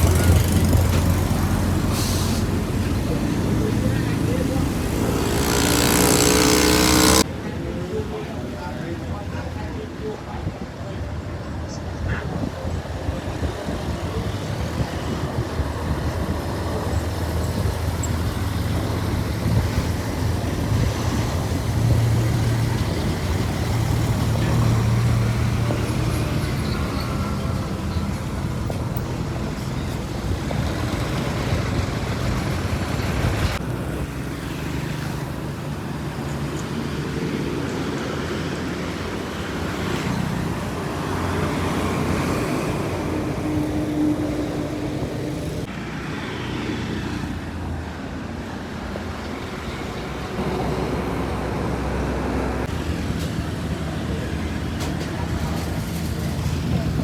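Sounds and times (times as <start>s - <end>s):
heavy truck engine rumble: 0.0s - 57.0s
traffic noise: 0.0s - 57.0s.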